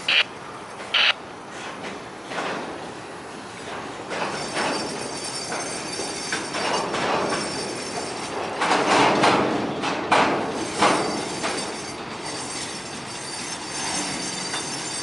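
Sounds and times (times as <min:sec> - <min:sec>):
train wheels clacking on rails: 0:00.0 - 0:15.0
metallic clanks and knocks: 0:03.7 - 0:11.6.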